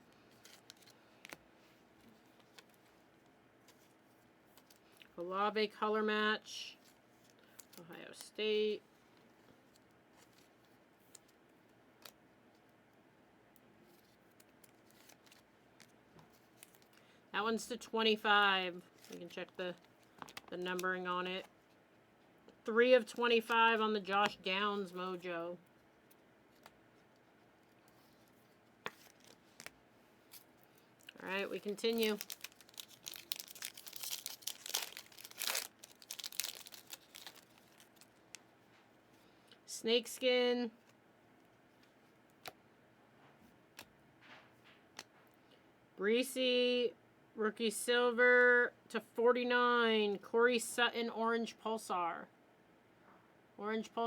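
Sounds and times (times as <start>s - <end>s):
trading cards being handled: 0.0s - 5.2s, 13.8s - 17.1s, 18.2s - 21.8s, 23.1s - 38.9s
card pack wrapper crinkling and tearing: 14.3s - 17.0s, 28.9s - 38.4s.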